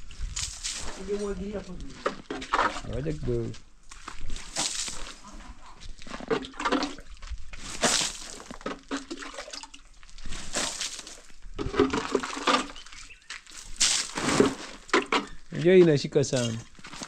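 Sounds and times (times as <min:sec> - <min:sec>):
water splashing on cement: 0:00.4 - 0:01.3, 0:04.2 - 0:05.2, 0:06.2 - 0:15.7.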